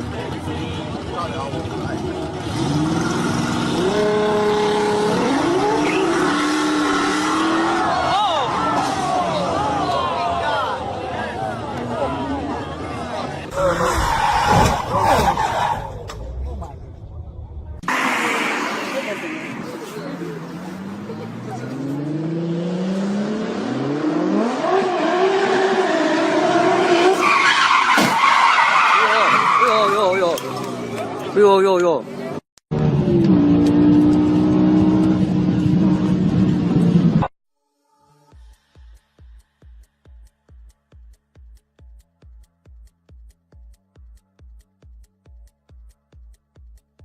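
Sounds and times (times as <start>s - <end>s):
car engine accelerating hard: 1.0s - 9.5s, 32.7s - 37.3s.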